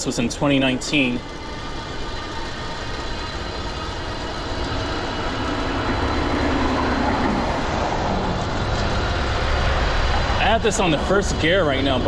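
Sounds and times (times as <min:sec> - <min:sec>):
road noise: 0:00.0 - 0:11.9
wind on microphone: 0:04.8 - 0:10.4.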